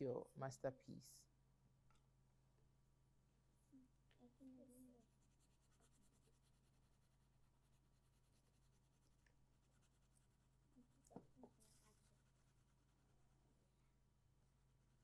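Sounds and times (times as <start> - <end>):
paper scratching: 5.2 - 13.1.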